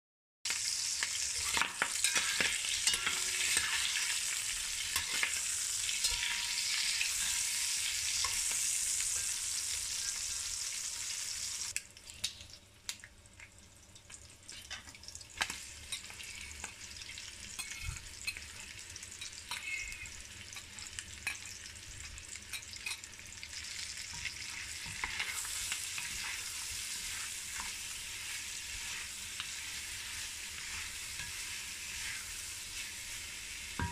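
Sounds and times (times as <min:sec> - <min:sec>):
meat sizzling in oil: 0:00.5 - 0:33.9
metal spoon clicking and scraping: 0:01.4 - 0:04.2, 0:15.9 - 0:16.7, 0:17.6 - 0:18.6, 0:19.2 - 0:21.5, 0:22.5 - 0:23.1, 0:24.1 - 0:27.8
wooden spatula stirring: 0:24.2 - 0:33.9.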